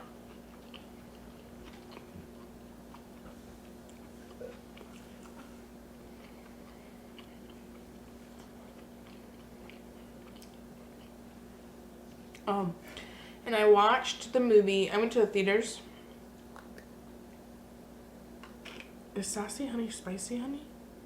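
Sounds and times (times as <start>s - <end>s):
close chewing and crunching: 0.0s - 11.2s
faint steady hum: 0.0s - 21.0s.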